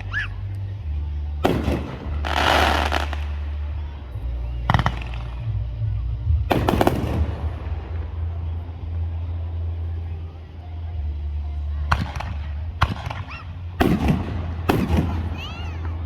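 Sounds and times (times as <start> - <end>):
low rumble: 0.0 - 16.0
fireworks bangs: 1.4 - 3.9, 4.6 - 5.6, 6.5 - 8.3, 11.9 - 15.9
fireworks crackle: 1.4 - 5.6, 6.5 - 8.6.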